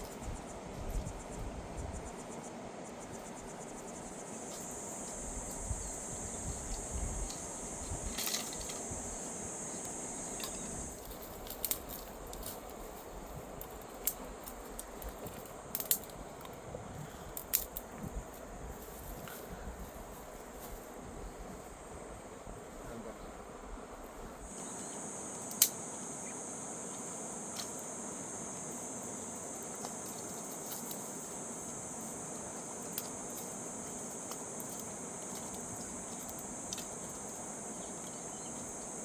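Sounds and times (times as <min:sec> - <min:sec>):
insect buzzing: 0:00.0 - 0:39.0
sharp clicks: 0:15.7 - 0:16.2.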